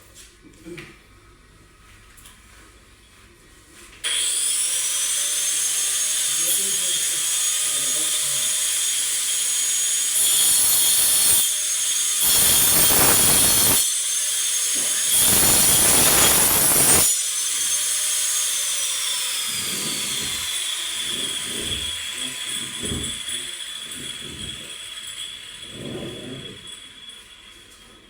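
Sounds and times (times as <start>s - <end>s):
angle grinder cutting plywood: 4.1s - 27.8s.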